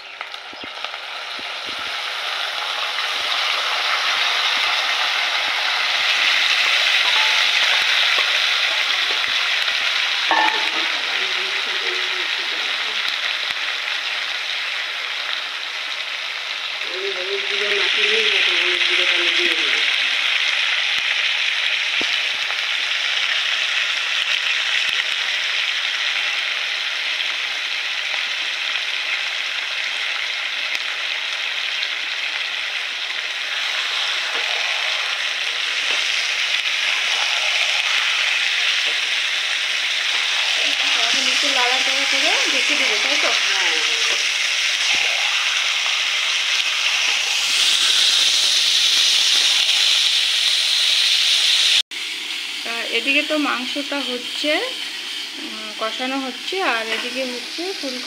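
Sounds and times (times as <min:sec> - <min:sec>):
food sizzling in hot oil: 0:00.0 - 0:58.0
metal spatula scraping a pan: 0:06.1 - 0:09.3, 0:33.5 - 0:39.2.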